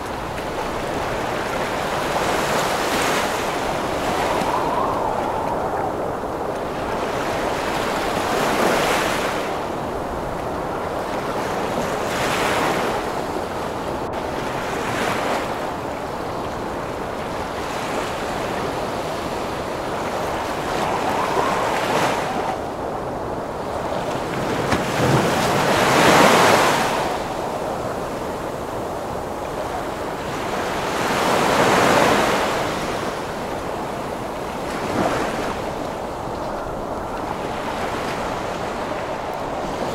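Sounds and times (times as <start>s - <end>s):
heavy ocean waves breaking: 0.0s - 39.9s
storm wind rushing: 2.0s - 10.8s, 18.5s - 30.6s.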